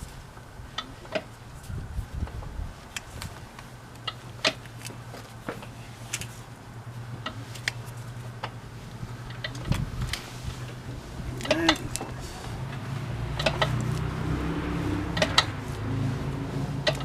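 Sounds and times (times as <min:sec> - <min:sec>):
metallic clicks and knocks: 0:13.4 - 0:14.0, 0:15.1 - 0:15.5.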